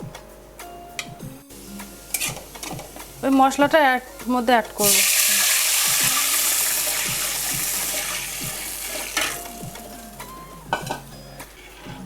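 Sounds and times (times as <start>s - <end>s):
sauce sizzling in a hot pan: 1.5s - 10.9s
spoon knocking against pan: 10.7s - 11.1s.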